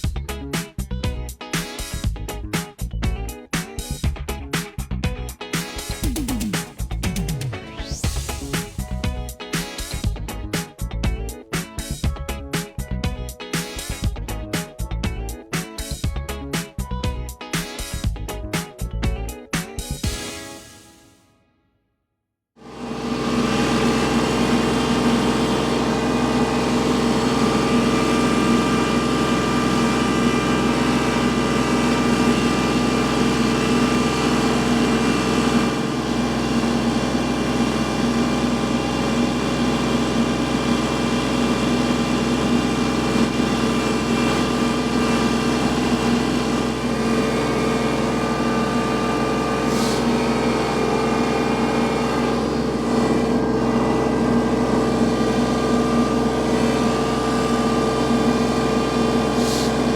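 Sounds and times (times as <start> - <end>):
tractor diesel engine under load: 22.6 - 59.9.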